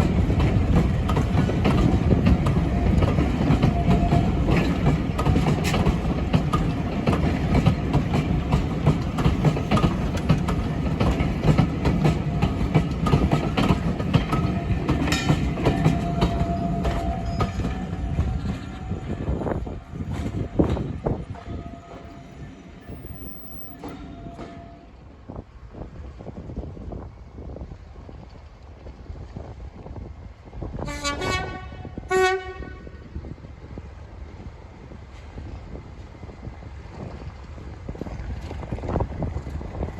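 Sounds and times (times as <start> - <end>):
wheels clattering over rail joints: 0.0 - 22.2
diesel train rumbling: 0.0 - 39.9.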